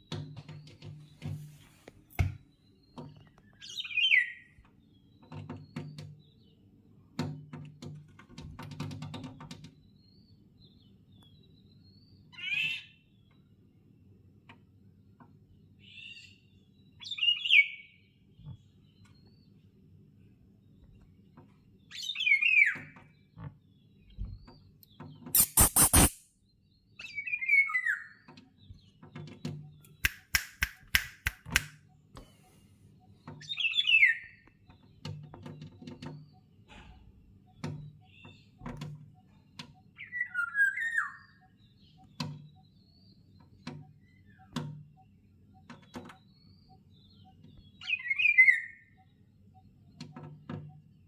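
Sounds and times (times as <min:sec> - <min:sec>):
sharp clicks: 0:25.4 - 0:26.2, 0:29.8 - 0:31.8.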